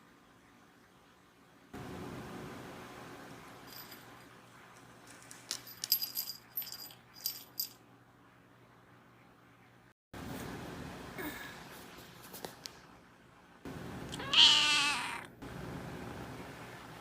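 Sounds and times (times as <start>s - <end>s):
small bell jingling: 3.6s - 4.4s, 5.1s - 7.8s.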